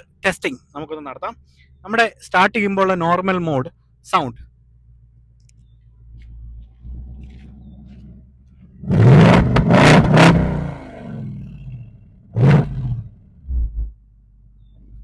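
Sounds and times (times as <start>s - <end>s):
car engine revving: 6.2s - 14.0s.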